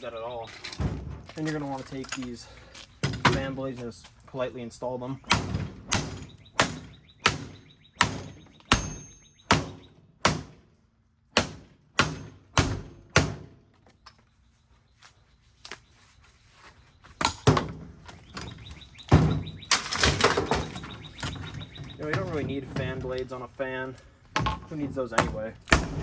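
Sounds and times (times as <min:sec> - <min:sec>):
fan blades clattering: 0:19.5 - 0:25.6.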